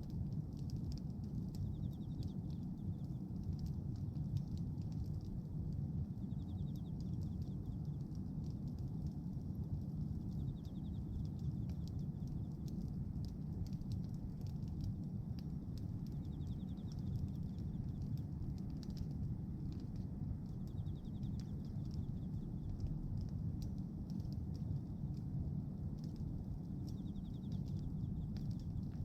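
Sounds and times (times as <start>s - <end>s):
bonfire crackling and popping: 0.0s - 29.0s
low rumble of fire: 0.0s - 29.0s.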